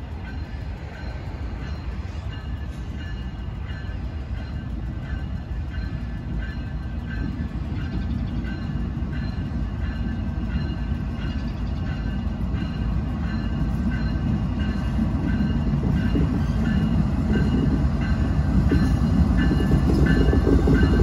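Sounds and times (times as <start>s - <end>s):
diesel locomotive engine rumble: 0.0s - 21.0s.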